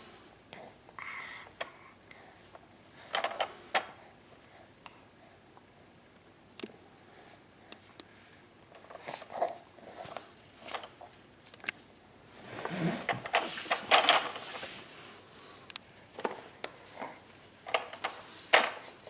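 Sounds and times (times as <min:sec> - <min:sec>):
clattering and rustling: 0:12.4 - 0:15.0.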